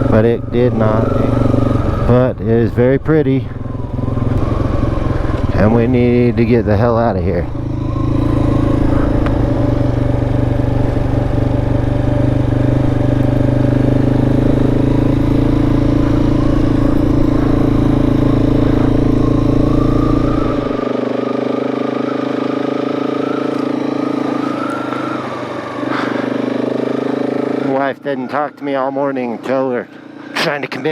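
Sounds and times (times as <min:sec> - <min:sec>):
motorcycle engine running: 0:00.0 - 0:30.9.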